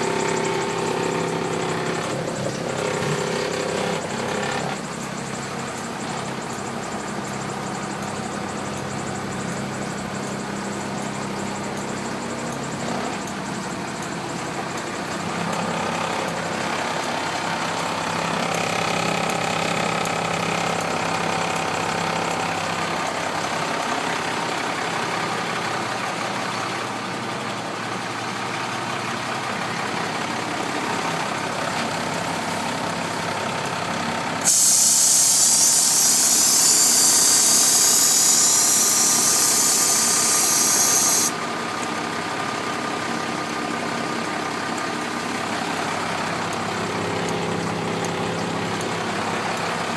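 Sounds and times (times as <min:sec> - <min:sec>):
diesel truck engine idling: 0:00.0 - 0:49.9
loud hiss: 0:34.4 - 0:41.3.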